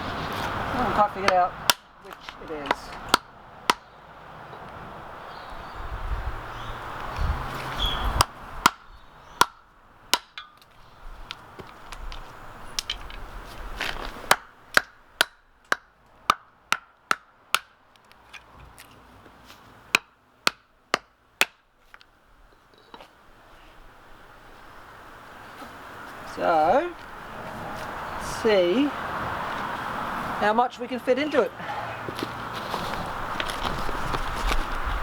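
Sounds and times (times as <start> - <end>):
hand tool chopping wood: 0.8 - 3.8, 8.2 - 10.7, 13.8 - 17.7, 19.9 - 21.6.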